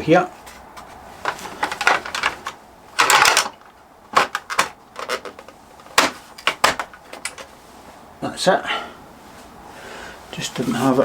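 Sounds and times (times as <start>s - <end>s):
plastic panel clicks and scrapes: 0.4s - 7.5s
plastic panel rattle: 0.4s - 7.5s.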